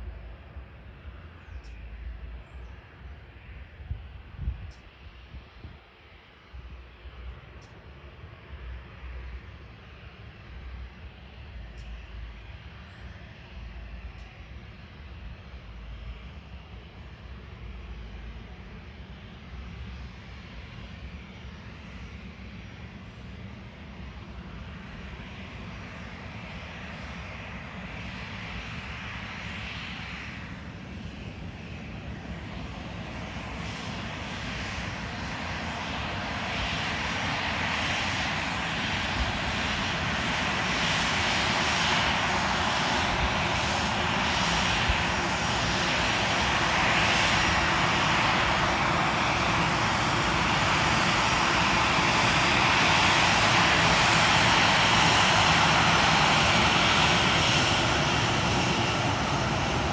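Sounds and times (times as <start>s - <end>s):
jet engines roaring: 6.5s - 59.9s.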